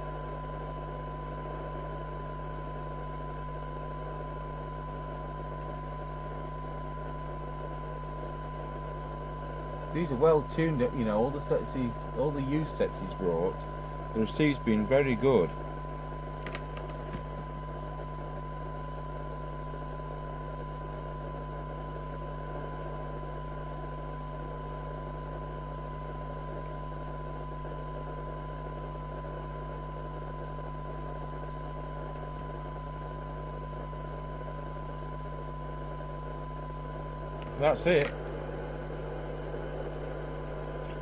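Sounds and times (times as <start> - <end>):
low steady hum: 0.0 - 41.0
radio test tone: 0.3 - 16.2, 25.6 - 41.0
radio hiss: 8.2 - 16.0, 36.9 - 41.0.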